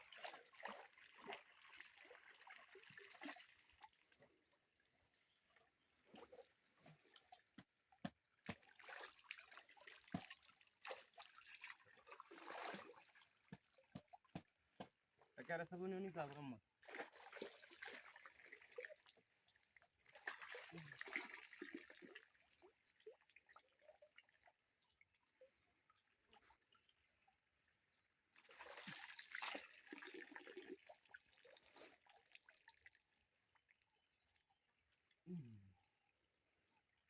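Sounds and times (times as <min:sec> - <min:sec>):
river water splashing: 0:00.0 - 0:04.0, 0:08.4 - 0:13.2, 0:16.8 - 0:19.0, 0:20.1 - 0:22.2, 0:28.4 - 0:31.1
small water drips: 0:00.0 - 0:36.2.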